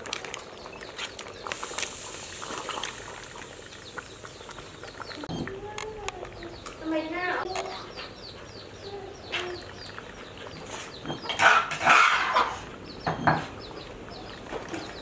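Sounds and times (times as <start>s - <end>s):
chicks peeping: 3.8s - 15.0s
utensils clattering and scraping: 10.6s - 13.6s.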